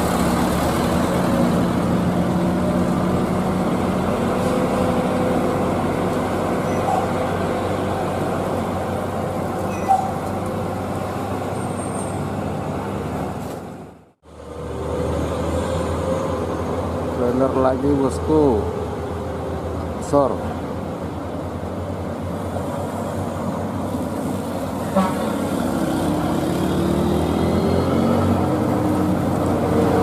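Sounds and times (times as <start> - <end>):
heavy truck engine running: 0.0 - 17.2
road traffic noise: 0.0 - 30.0.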